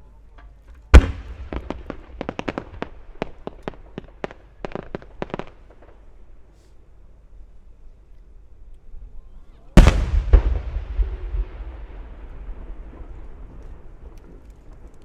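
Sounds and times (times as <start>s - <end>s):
fireworks boom: 0.8s - 3.4s, 9.8s - 15.0s
sharp fireworks reports: 0.9s - 6.1s, 9.8s - 15.0s.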